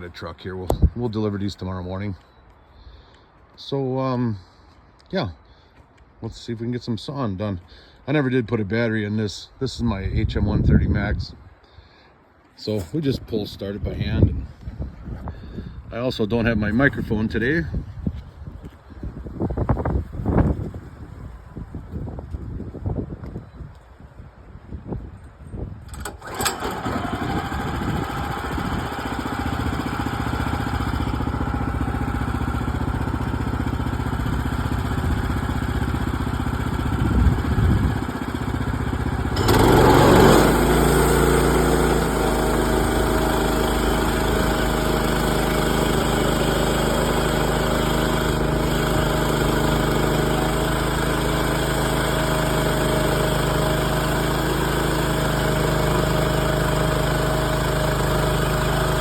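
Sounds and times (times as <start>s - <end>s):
small gasoline engine running: 25.9s - 59.0s.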